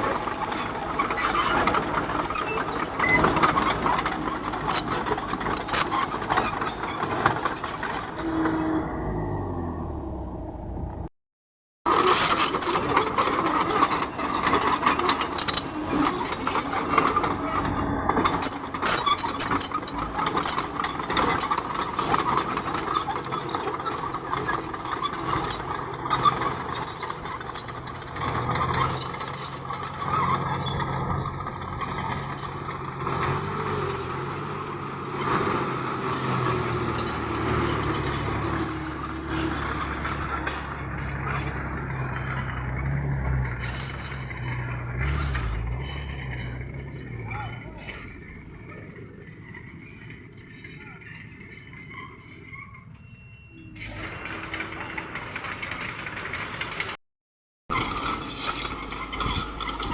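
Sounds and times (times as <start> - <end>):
clanking and rattling: 0.0 - 8.6, 11.9 - 52.6, 53.8 - 57.0, 57.7 - 59.9
bulldozer diesel engine: 0.0 - 11.1, 11.9 - 57.0, 57.7 - 59.9.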